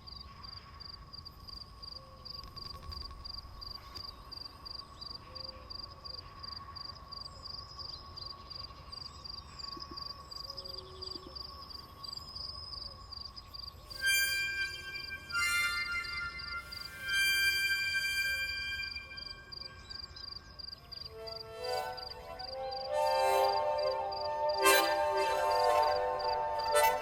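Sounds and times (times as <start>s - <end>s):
crickets chirping: 0.0s - 27.0s
low insect tone: 0.0s - 27.0s
music: 13.9s - 20.4s, 21.1s - 27.0s.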